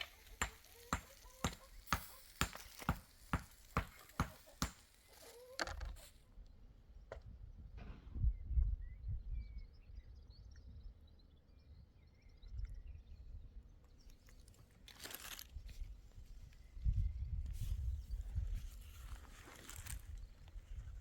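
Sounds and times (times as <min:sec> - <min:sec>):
rustling crunching noises: 0:00.0 - 0:06.2, 0:14.1 - 0:16.7, 0:17.5 - 0:21.0
faint bird chirps: 0:08.2 - 0:14.6
low wind rumble: 0:15.8 - 0:21.0.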